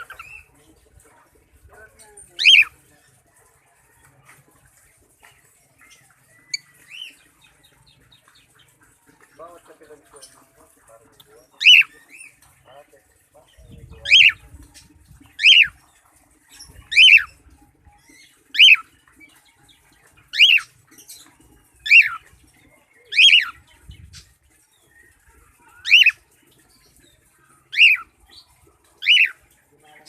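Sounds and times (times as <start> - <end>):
cockatiel whistled calls: 29.0 - 29.4.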